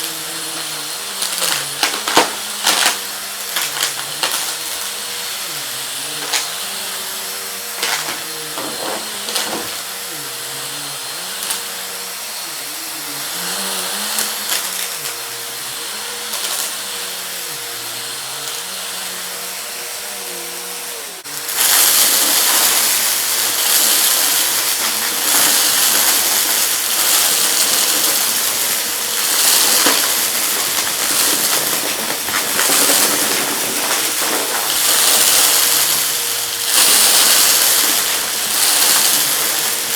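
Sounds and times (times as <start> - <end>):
vacuum cleaner running: 0.0 - 39.9
debris ticking and clattering: 1.3 - 4.6, 7.8 - 9.9, 21.6 - 39.9.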